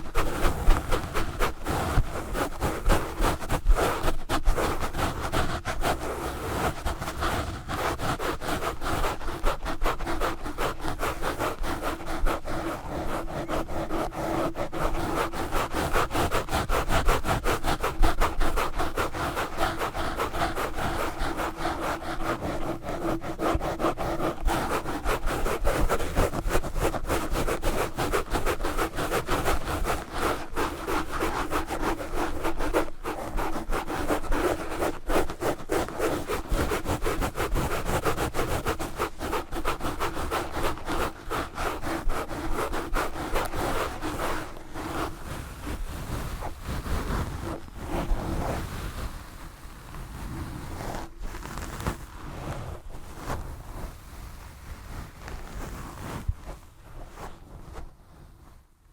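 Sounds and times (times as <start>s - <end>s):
gloves scratching on microphone: 0.0s - 58.6s.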